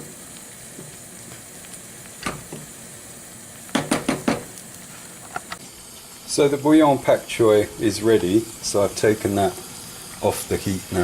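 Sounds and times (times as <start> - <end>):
pots simmering with hiss: 0.0 - 11.0
knocks against a pot: 3.7 - 4.5.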